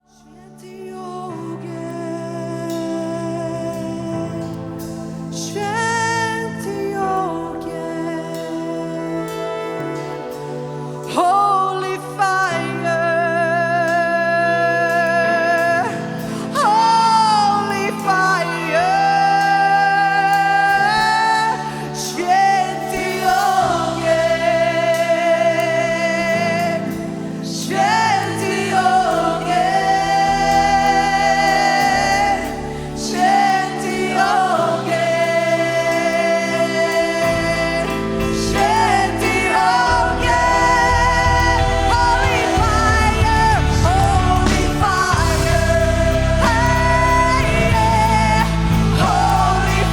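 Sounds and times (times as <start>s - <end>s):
worship band music: 0.0s - 49.9s
deep bass: 37.2s - 49.9s.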